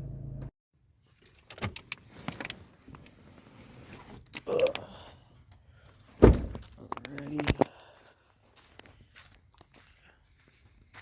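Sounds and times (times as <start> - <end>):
loud bump: 6.2 - 6.6.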